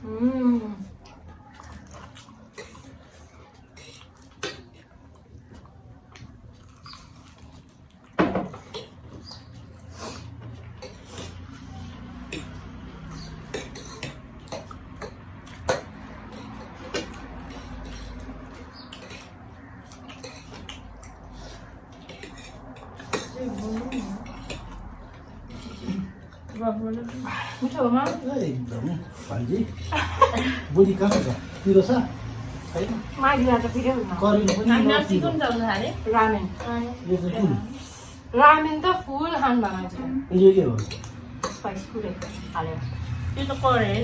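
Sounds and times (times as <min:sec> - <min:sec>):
utensils clicking against dishes: 0:10.7 - 0:26.6, 0:29.3 - 0:31.9, 0:32.6 - 0:36.8, 0:40.7 - 0:44.0.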